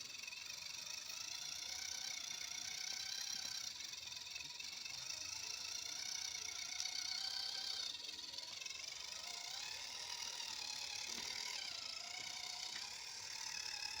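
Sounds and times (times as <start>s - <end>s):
toy electric motor gear whine: 0.0s - 14.0s.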